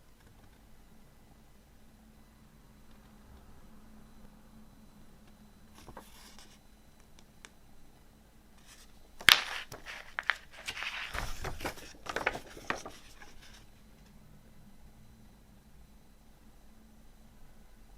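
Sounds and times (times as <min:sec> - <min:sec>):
hands handling cd case: 0:08.7 - 0:13.6.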